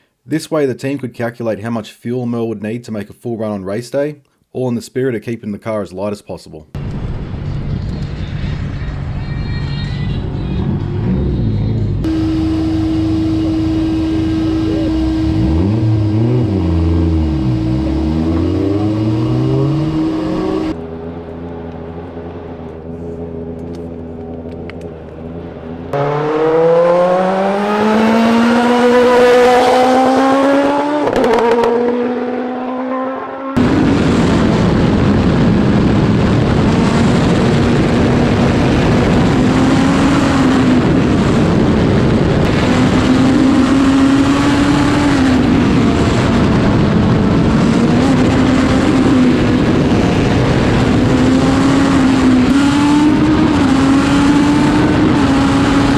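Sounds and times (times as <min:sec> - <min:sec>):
race car engine revving: 0:07.9 - 0:55.9
race car accelerating hard: 0:10.2 - 0:55.9
wind noise at speed: 0:25.9 - 0:55.9.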